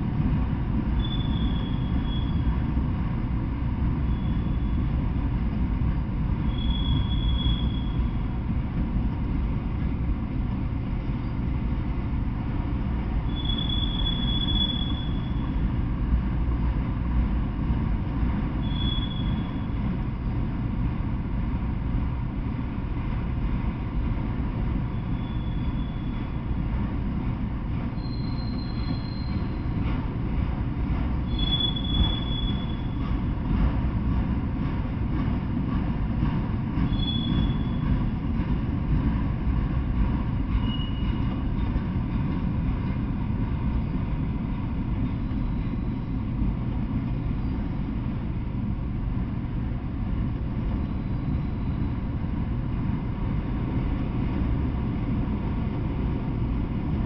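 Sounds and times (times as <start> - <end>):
train wheels rumbling on rail: 0.0 - 57.0
high-pitched wheel squeals: 1.0 - 2.5, 4.0 - 4.9, 6.4 - 8.2, 13.2 - 15.6, 18.6 - 19.8, 24.9 - 26.4, 27.9 - 29.8, 31.2 - 33.0, 36.9 - 37.9, 40.5 - 41.4, 50.8 - 52.1.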